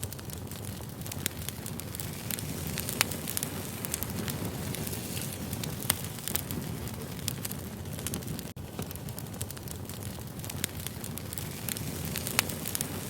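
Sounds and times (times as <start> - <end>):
fire crackles and pops: 0.0 - 13.0
fire low rumble: 0.0 - 13.0.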